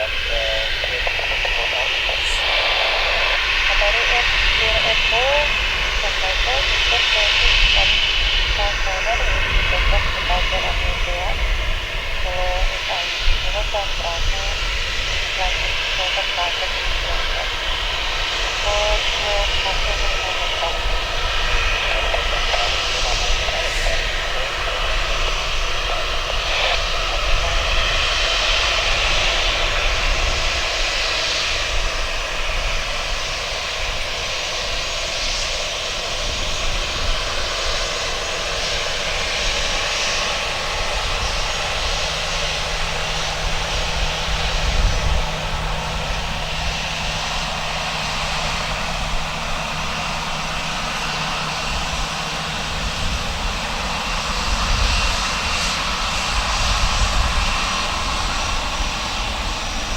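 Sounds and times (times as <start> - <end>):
jet engines rumbling: 0.0 - 59.9.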